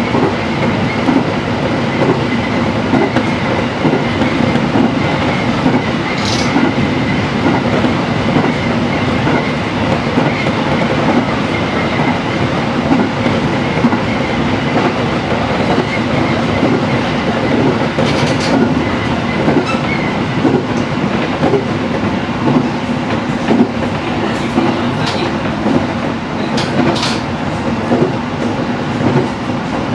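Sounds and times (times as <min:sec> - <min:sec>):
train wheels rumbling on rails: 0:00.0 - 0:29.9
high wheel squeaks: 0:17.5 - 0:20.3.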